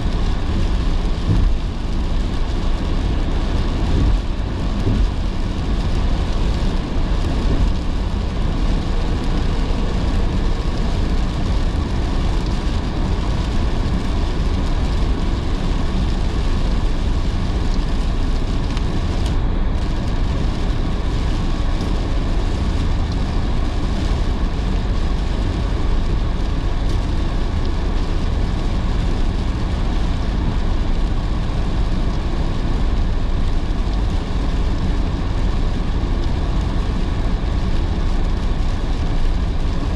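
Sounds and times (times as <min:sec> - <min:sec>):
car road and engine rumble: 0:00.0 - 0:39.9
rain hissing: 0:00.0 - 0:39.9.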